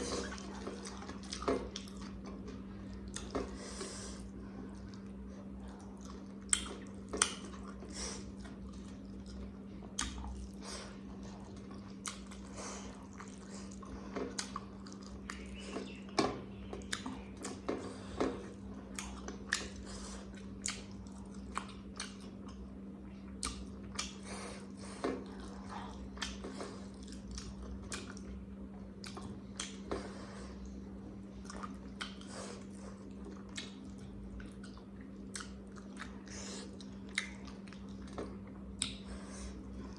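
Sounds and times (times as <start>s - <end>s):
low electrical hum: 0.0s - 39.9s
person chewing food: 0.0s - 39.9s.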